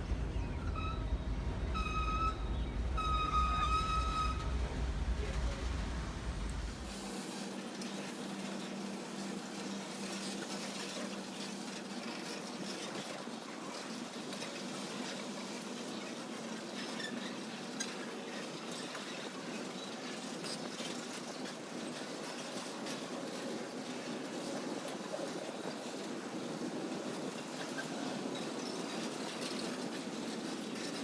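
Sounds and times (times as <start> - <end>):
rain hissing: 2.7 - 8.2.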